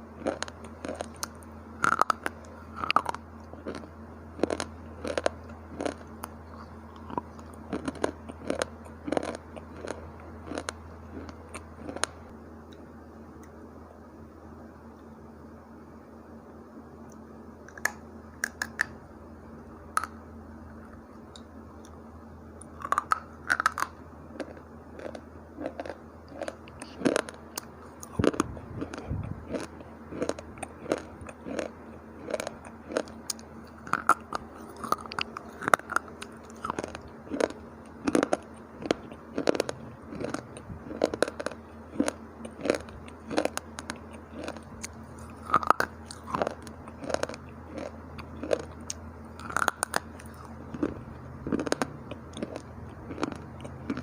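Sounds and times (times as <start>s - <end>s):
crunching dry clay chips: 0.2s - 12.2s, 22.6s - 54.0s.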